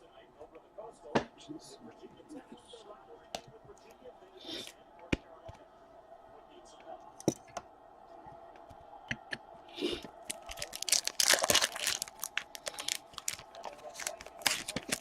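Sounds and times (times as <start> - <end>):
plastic wrapping crinkling and tearing: 10.2 - 15.0
clicks and rustles: 10.3 - 15.0.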